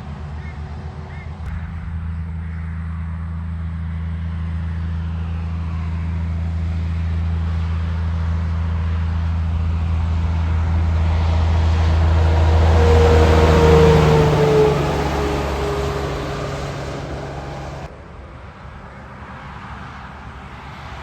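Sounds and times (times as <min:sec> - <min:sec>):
truck passing on a wet road: 0:00.0 - 0:01.6, 0:05.0 - 0:18.2
low engine hum: 0:00.0 - 0:19.4.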